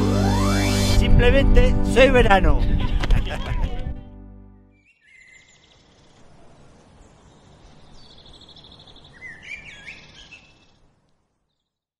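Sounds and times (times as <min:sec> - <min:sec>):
bird trill: 0:04.7 - 0:06.2, 0:07.4 - 0:10.8
small birds chirping: 0:04.8 - 0:11.9
outdoor background hiss: 0:05.0 - 0:11.9.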